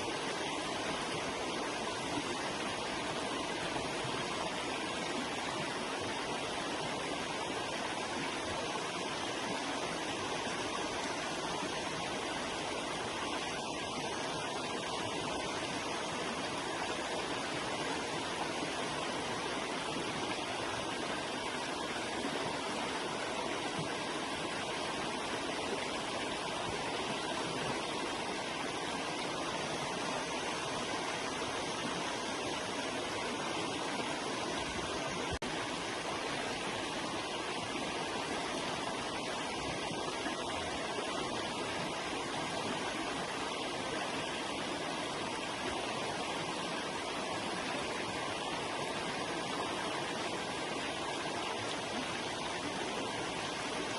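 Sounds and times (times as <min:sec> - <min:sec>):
river water flowing: 0:00.0 - 0:53.9.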